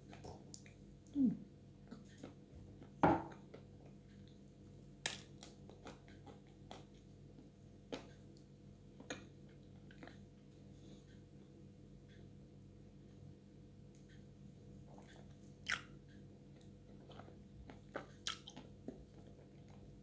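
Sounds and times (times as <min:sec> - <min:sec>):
chewing with wet smacks: 0:00.1 - 0:01.2, 0:05.0 - 0:10.3, 0:14.9 - 0:20.0.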